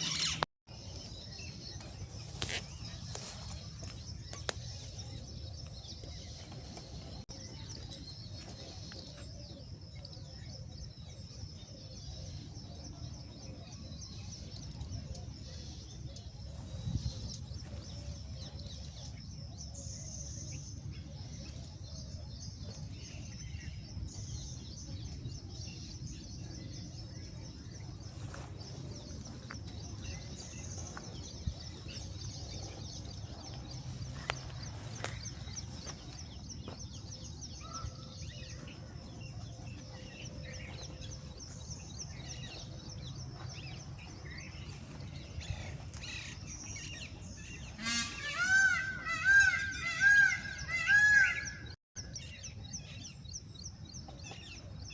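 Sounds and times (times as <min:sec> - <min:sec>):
large bird calling loudly: 0:00.0 - 0:00.4, 0:47.5 - 0:51.8
small birds chirping: 0:00.0 - 0:54.9.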